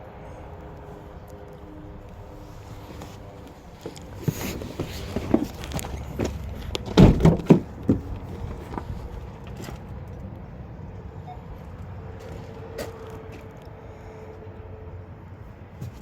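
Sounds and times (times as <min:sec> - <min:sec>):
loud thumps: 0:06.8 - 0:08.1.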